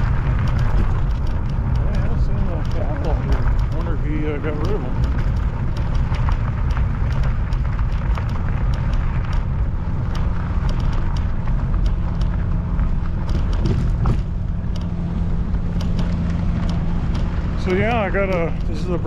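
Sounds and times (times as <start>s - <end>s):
bike tyres crunching on gravel: 0.0s - 19.0s
low even motor hum: 0.0s - 19.0s
stones clicking: 0.0s - 19.0s
wind rumble on microphone: 0.0s - 19.0s.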